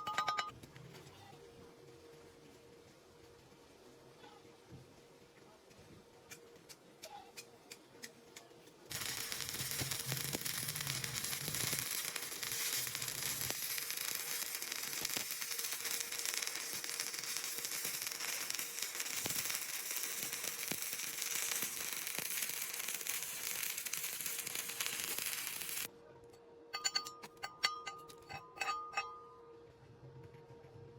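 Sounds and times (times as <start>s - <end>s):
welding arc crackling: 8.9s - 25.9s.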